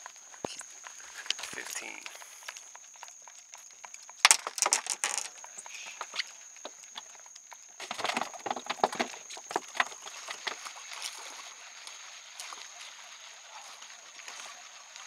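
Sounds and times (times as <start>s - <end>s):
quick irregular knocks and rattles: 4.2s - 5.3s, 7.8s - 10.1s.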